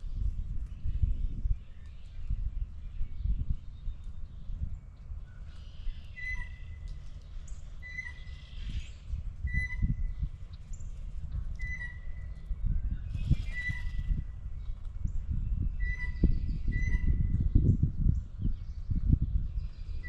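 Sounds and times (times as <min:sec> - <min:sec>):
bird whistled note: 0:11.6 - 0:12.1
high bird chirps: 0:11.6 - 0:12.4, 0:13.1 - 0:14.2.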